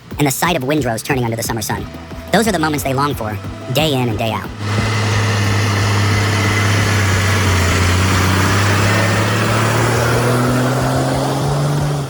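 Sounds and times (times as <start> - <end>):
heavy vehicle engine under load: 1.9 - 12.0.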